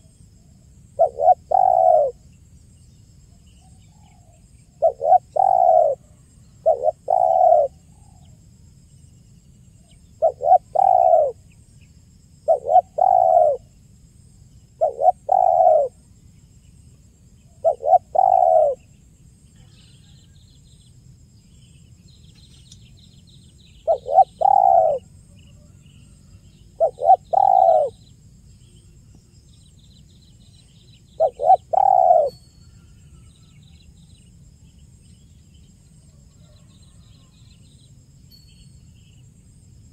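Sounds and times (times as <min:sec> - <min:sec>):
dove cooing: 0:01.0 - 0:02.2, 0:04.0 - 0:08.3, 0:10.2 - 0:11.4, 0:12.4 - 0:13.7, 0:14.8 - 0:16.0, 0:17.6 - 0:18.9, 0:23.8 - 0:28.0, 0:31.1 - 0:33.3
faint small bird chirps: 0:17.4 - 0:39.9.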